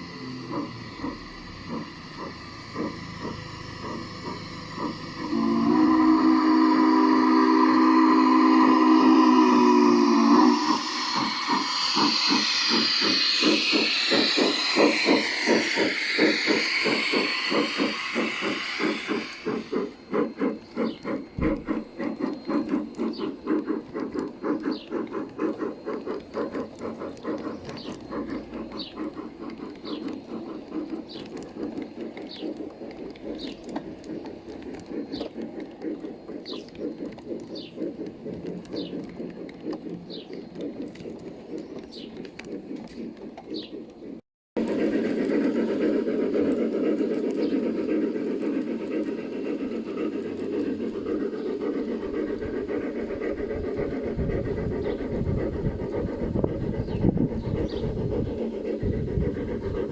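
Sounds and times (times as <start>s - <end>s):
birds chirping: 9.2s - 43.9s
model train clattering on track: 9.8s - 59.9s.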